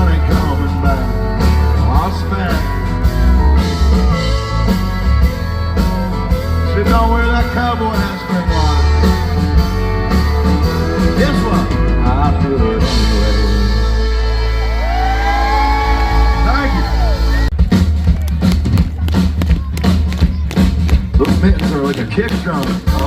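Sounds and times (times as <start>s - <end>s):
bending lead guitar notes: 0.0s - 17.7s
country band playing: 0.0s - 23.0s.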